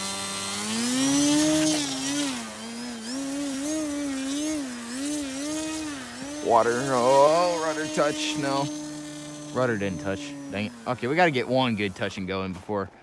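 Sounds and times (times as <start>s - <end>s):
electric motor and propeller whining: 0.0s - 13.0s.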